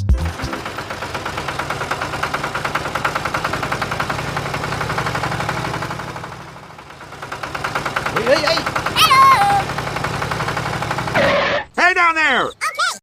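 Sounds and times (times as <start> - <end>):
small toy motor rattling: 7.4 - 11.3.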